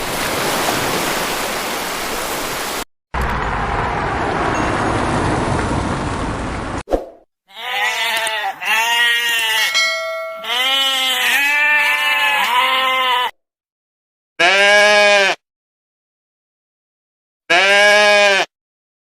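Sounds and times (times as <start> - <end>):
sheep bleating: 7.5 - 13.4, 14.4 - 15.4, 17.5 - 18.5.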